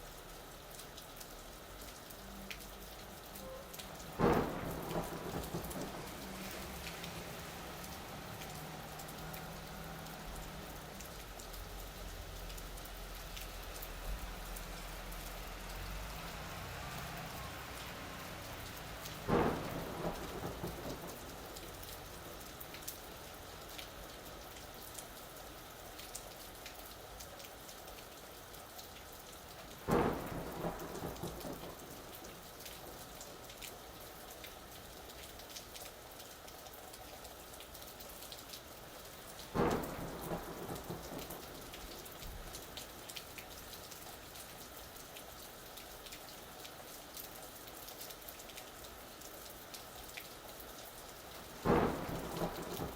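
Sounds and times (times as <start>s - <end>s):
rain falling: 0.0s - 52.9s
thunder rumbling: 3.4s - 11.3s, 15.8s - 22.7s, 29.9s - 33.0s, 39.5s - 42.5s, 51.6s - 52.9s
sharp thunder claps: 4.2s - 8.2s, 19.2s - 22.2s, 29.9s - 32.1s, 39.6s - 42.0s, 51.6s - 52.9s.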